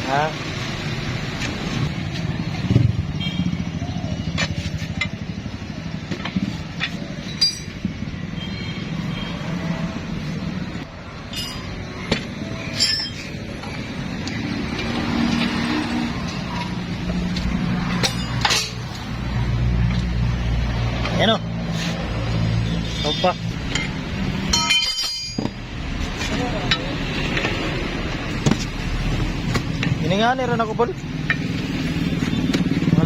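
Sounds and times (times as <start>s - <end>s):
metal tools clinking: 6.8s - 7.9s, 11.2s - 13.9s, 17.9s - 19.0s, 23.6s - 27.0s.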